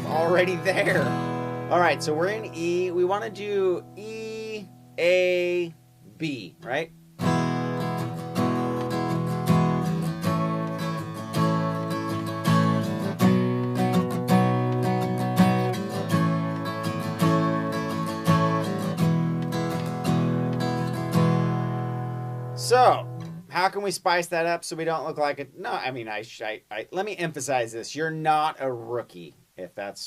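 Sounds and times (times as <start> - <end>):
acoustic guitar strumming chords: 0.0 - 23.9.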